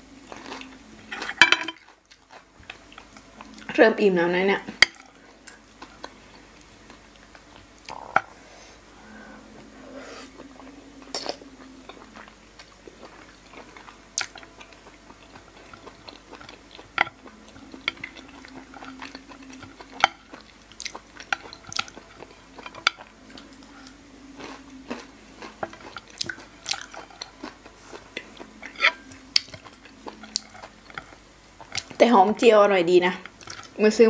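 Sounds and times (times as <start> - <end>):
person chewing and mouth smacks: 10.4 - 32.0, 33.3 - 33.8.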